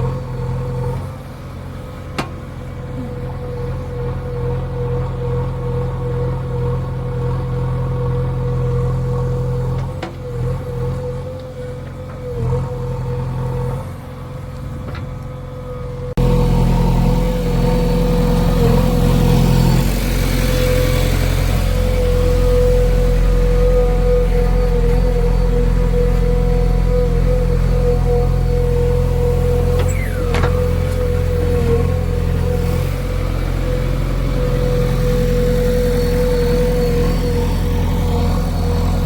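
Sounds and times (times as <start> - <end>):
diesel engine running: 0.0 - 39.0
steady whine: 16.2 - 39.0.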